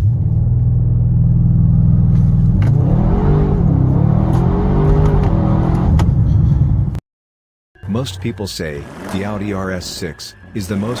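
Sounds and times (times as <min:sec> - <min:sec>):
car engine revving: 0:00.0 - 0:06.2.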